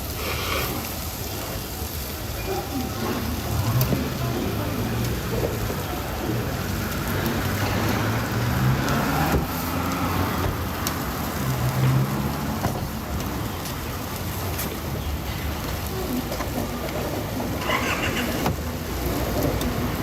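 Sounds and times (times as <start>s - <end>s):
even hiss: 0.0s - 13.1s.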